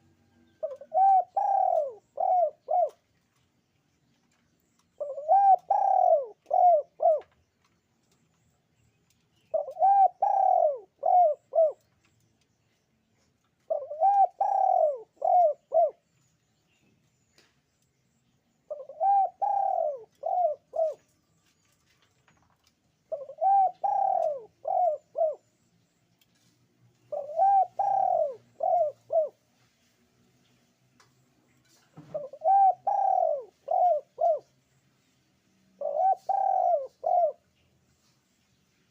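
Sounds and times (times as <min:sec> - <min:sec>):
dove cooing: 0:00.0 - 0:03.0, 0:05.0 - 0:07.3, 0:09.5 - 0:11.8, 0:13.6 - 0:16.0, 0:18.7 - 0:21.1, 0:23.1 - 0:25.5, 0:27.1 - 0:29.4, 0:32.1 - 0:34.5, 0:35.8 - 0:37.4.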